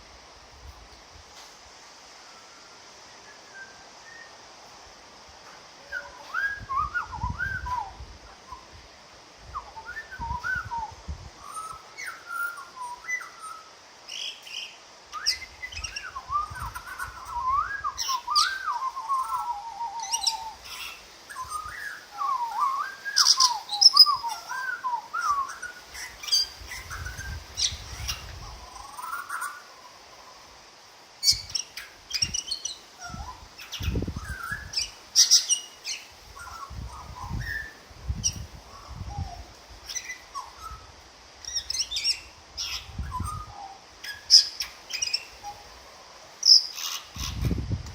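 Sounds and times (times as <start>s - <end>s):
butcherbird singing: 9.6s - 30.4s, 31.2s - 45.7s, 46.4s - 47.6s.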